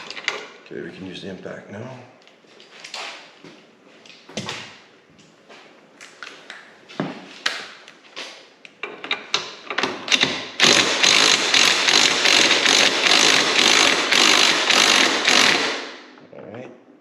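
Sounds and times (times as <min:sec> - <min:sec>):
impact wrench hammering: 0:09.0 - 0:16.1.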